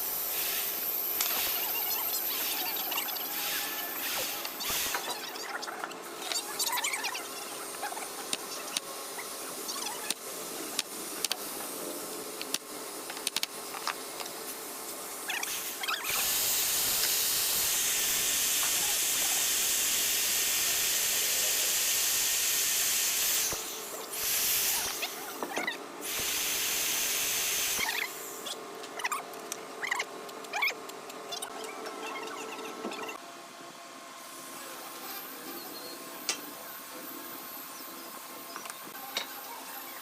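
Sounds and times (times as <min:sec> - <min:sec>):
woodworking power tool running: 0:15.5 - 0:25.4, 0:26.0 - 0:28.4.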